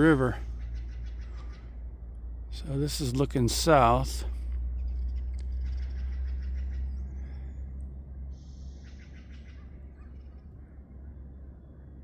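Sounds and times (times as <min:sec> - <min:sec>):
birds calling and chirping: 0:00.0 - 0:12.0
low rumble: 0:00.0 - 0:12.0.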